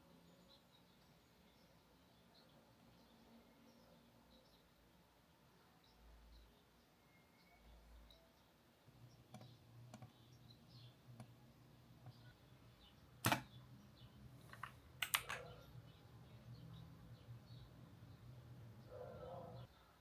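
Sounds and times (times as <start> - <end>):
keyboard and mouse clicks: 13.2 - 13.6, 14.4 - 15.7.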